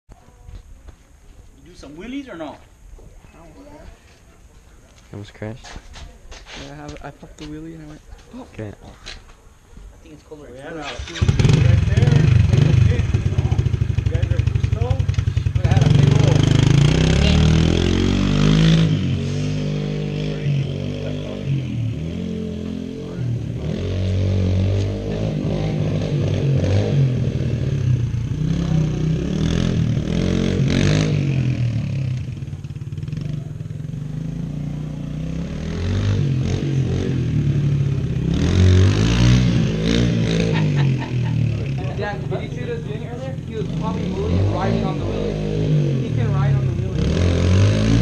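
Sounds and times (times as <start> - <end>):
dirt bike engine revving: 10.7 - 48.0.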